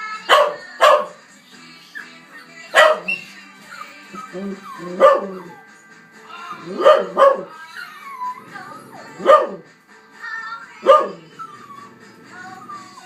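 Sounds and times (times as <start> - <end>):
dog barking: 0.3 - 1.2, 2.7 - 3.3, 4.2 - 5.6, 6.7 - 7.6, 9.1 - 9.7, 10.8 - 11.3
dog whining: 1.8 - 5.7, 6.4 - 9.6, 10.8 - 13.0.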